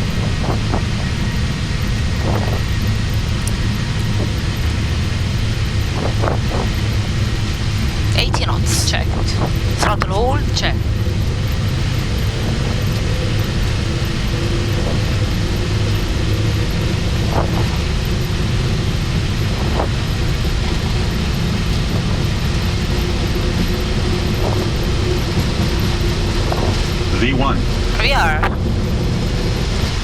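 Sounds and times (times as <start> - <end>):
airflow rushing: 0.0 - 9.9
jet engines rumbling: 0.0 - 30.0.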